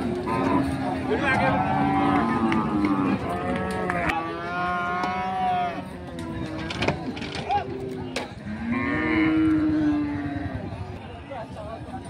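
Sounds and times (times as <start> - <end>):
cow mooing: 0.2 - 7.0, 8.4 - 10.6.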